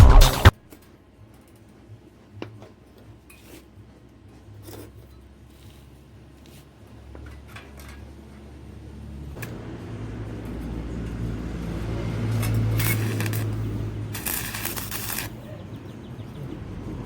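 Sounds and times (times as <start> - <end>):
hissing scraping bursts: 12.4 - 15.4.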